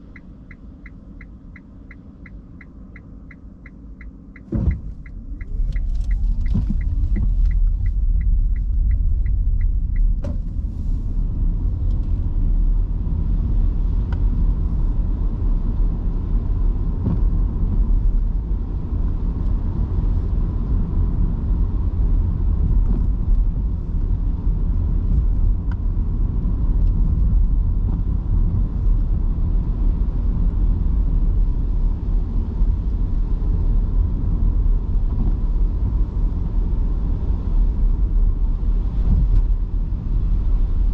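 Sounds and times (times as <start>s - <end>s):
light regular ticking: 0.0s - 10.2s
road and tyre rumble: 0.0s - 40.9s.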